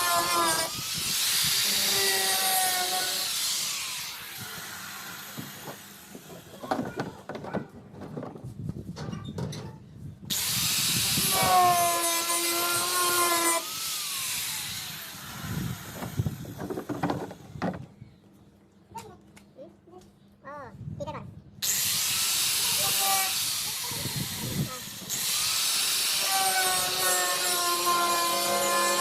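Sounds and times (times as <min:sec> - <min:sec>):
power tool grinding cement: 0:00.0 - 0:06.6, 0:10.3 - 0:16.8, 0:21.6 - 0:29.0.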